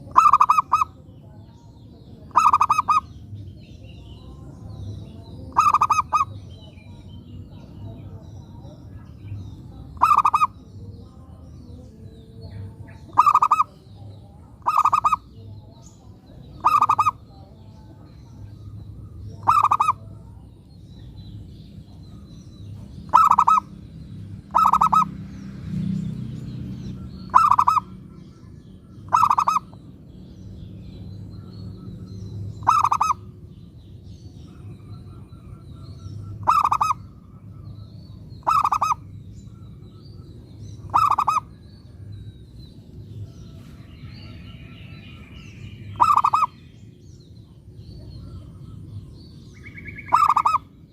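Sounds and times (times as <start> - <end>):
dove cooing: 0.0 - 1.0, 2.3 - 3.1, 5.5 - 6.4, 13.0 - 13.8, 14.6 - 15.4, 16.6 - 17.2, 19.0 - 20.2, 23.1 - 23.7, 24.5 - 25.1, 27.3 - 28.0, 29.0 - 29.8, 32.6 - 33.3, 34.5 - 37.7, 38.4 - 39.7, 40.8 - 41.6, 45.9 - 46.6, 49.6 - 50.7.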